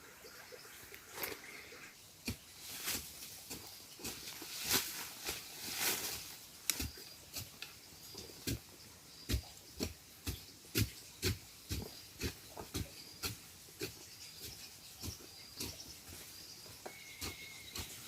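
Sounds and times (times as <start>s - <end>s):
rustling scrapes: 2.6s - 6.4s.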